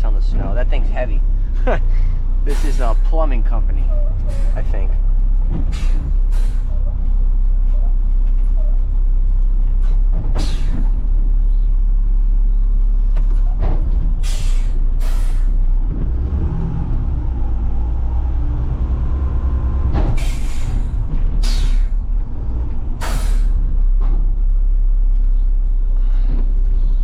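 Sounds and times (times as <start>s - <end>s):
diesel truck engine running: 0.0s - 27.0s
air brake hisses: 5.7s - 6.8s, 14.2s - 15.6s, 20.2s - 22.0s, 23.0s - 23.6s.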